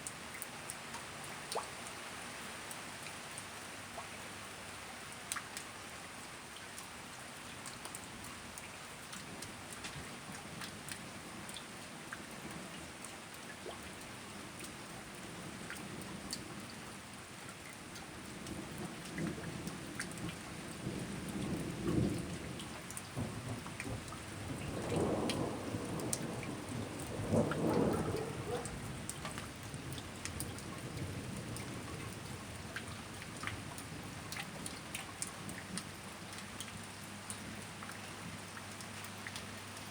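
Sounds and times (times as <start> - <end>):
steady rain: 0.0 - 39.9
thunder rolling: 23.2 - 29.1.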